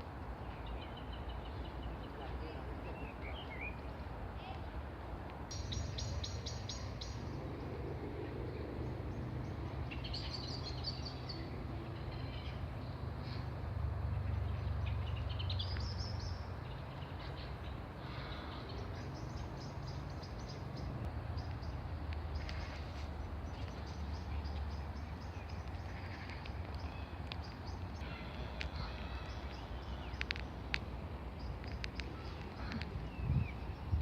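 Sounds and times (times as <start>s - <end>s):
steady low rumble: 3.8s - 16.8s.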